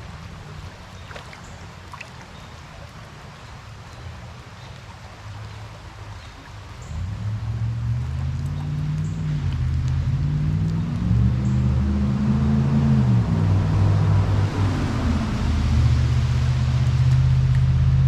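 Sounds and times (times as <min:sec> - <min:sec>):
creek water flowing: 0:00.0 - 0:18.0
passing vehicle engine hum: 0:06.8 - 0:18.0.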